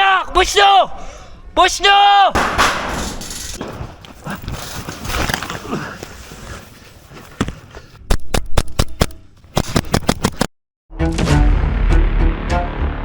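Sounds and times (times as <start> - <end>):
airsoft guns firing: 2.4 - 3.7
rustling movement: 3.0 - 8.0.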